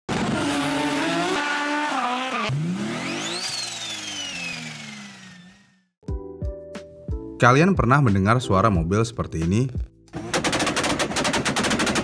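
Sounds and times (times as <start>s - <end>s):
racing car engine revving: 0.1s - 5.8s.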